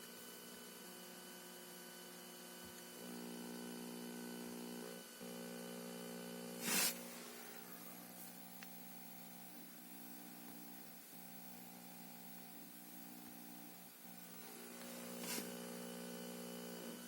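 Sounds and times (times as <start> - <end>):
buzzing digital hum from car speakers: 0.0 - 17.0.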